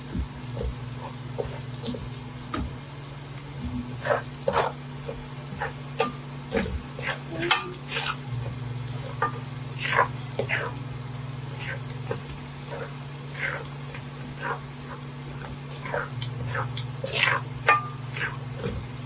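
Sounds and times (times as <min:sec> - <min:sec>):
garlic sizzling in a frying pan: 0:00.0 - 0:19.0
steady low hum: 0:00.0 - 0:19.0
utensil scraping a pan: 0:03.9 - 0:10.8, 0:11.5 - 0:19.0.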